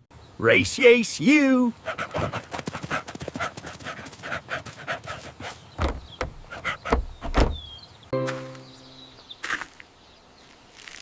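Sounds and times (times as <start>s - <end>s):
dog panting: 1.8s - 5.6s
heavy thumps: 5.8s - 7.6s.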